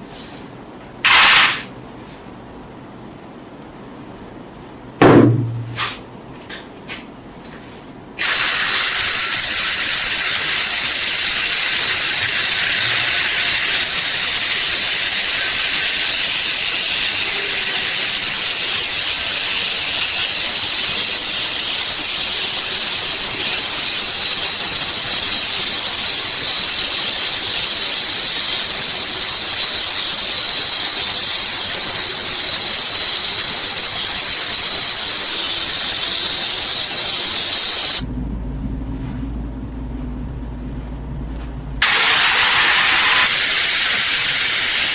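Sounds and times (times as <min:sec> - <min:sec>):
thump: 0:05.0 - 0:06.0
power tool hissing: 0:08.2 - 0:38.0, 0:41.8 - 0:44.9.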